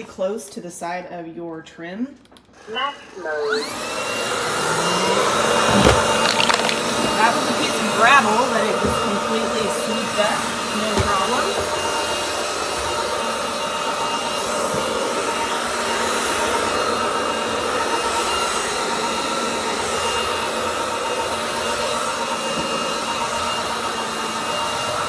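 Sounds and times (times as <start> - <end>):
floor vacuum running: 2.6 - 25.0.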